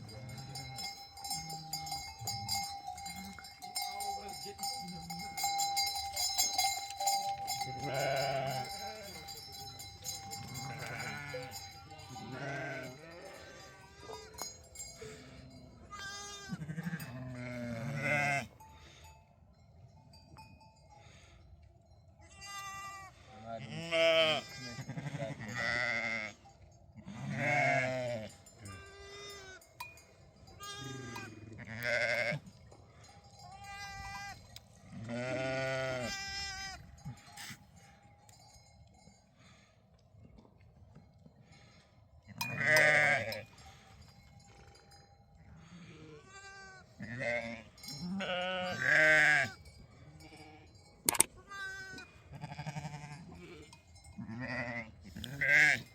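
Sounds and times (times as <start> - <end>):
livestock bell ringing: 0.0 - 23.3, 24.0 - 39.8, 40.8 - 55.9
sheep or goats bleating: 7.0 - 9.5, 10.3 - 14.4, 15.8 - 18.5, 22.2 - 26.4, 27.0 - 29.7, 30.5 - 32.5, 33.5 - 37.6, 42.4 - 43.4, 45.8 - 49.6, 50.2 - 55.9.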